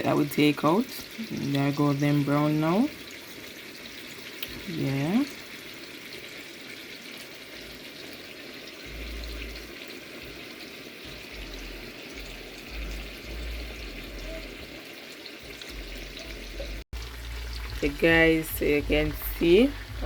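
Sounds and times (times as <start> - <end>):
chicken frying in hot oil: 0.0 - 20.0.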